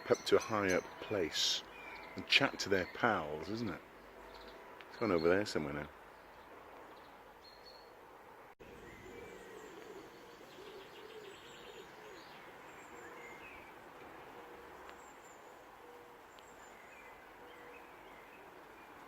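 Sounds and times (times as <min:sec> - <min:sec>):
small birds chirping and singing: 0:00.0 - 0:08.0, 0:08.6 - 0:19.0
pigeon cooing: 0:08.6 - 0:14.8.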